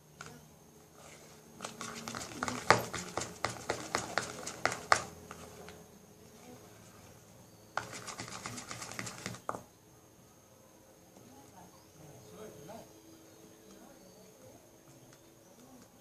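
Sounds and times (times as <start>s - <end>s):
slime being mixed: 1.0s - 5.8s, 7.8s - 9.5s.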